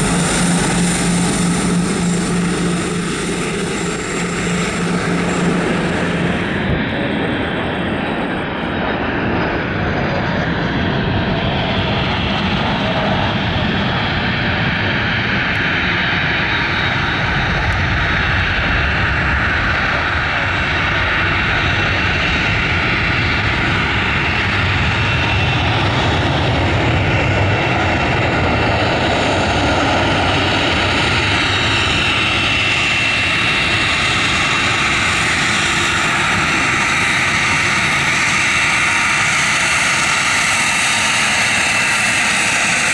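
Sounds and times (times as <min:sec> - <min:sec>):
thin high whine: 0:00.0 - 0:08.7
aircraft engine running: 0:00.0 - 0:42.9.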